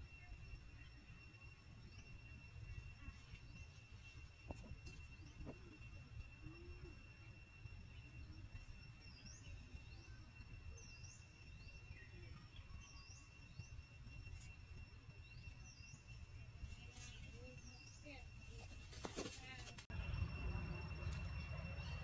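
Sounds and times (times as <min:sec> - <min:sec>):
bird chirping: 0:00.0 - 0:22.0
steady high whine: 0:00.0 - 0:22.0
low rumble: 0:19.9 - 0:22.0.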